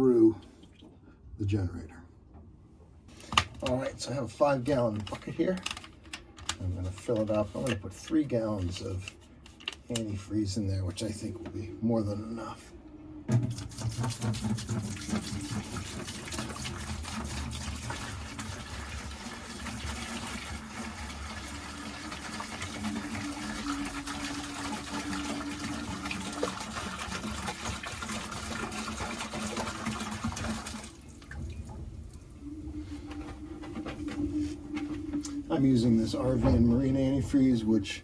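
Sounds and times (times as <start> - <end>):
liquid pouring into bucket: 13.3 - 32.4.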